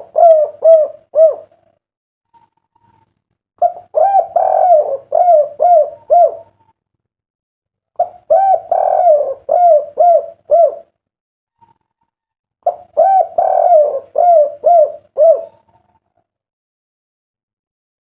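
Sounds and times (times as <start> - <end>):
collared dove cooing: 0.0 - 1.7, 3.6 - 6.7, 8.0 - 11.0, 12.6 - 16.2.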